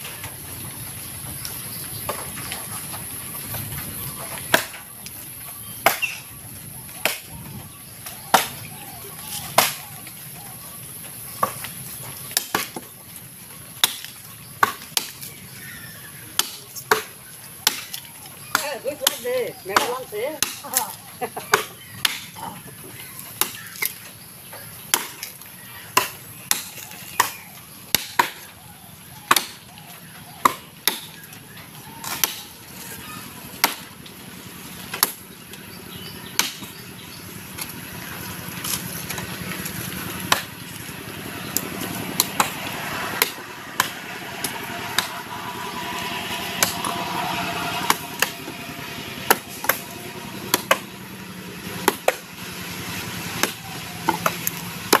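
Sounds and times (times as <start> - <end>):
axe chopping tree trunk: 5.8 - 6.2, 8.2 - 8.7, 9.5 - 9.9, 12.3 - 12.9, 13.8 - 15.6, 16.3 - 20.9, 21.5 - 22.3, 23.4 - 24.0, 24.9 - 25.3, 25.9 - 28.5, 29.3 - 29.6, 30.4 - 31.2, 32.0 - 32.5, 33.6 - 33.9, 34.9 - 35.2, 36.3 - 36.8, 40.2 - 40.5, 42.2 - 45.2, 51.8 - 52.2, 53.3 - 55.0.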